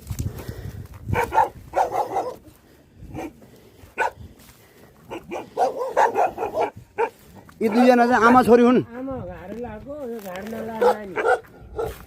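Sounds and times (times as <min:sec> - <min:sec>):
dogs barking: 0:01.1 - 0:02.5, 0:03.1 - 0:04.3, 0:05.0 - 0:08.2, 0:10.8 - 0:12.0.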